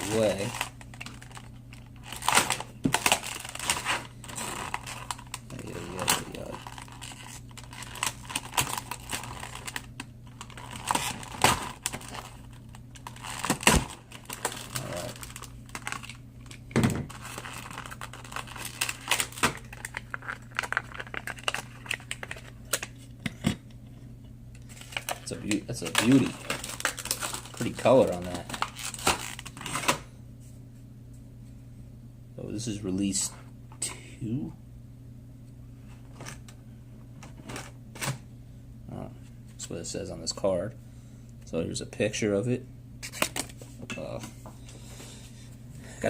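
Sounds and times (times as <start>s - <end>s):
plastic packaging crinkling and cracking: 0.0s - 23.0s, 24.6s - 30.0s.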